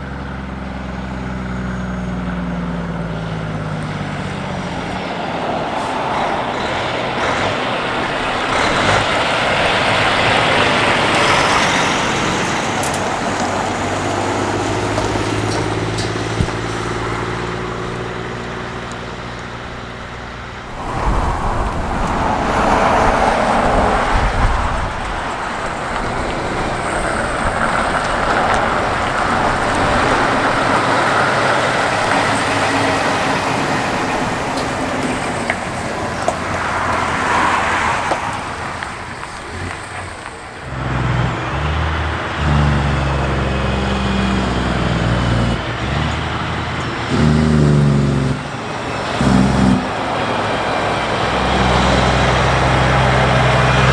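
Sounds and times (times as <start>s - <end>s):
heavy truck driving past: 0.0s - 53.9s
deep truck engine note: 38.5s - 53.9s.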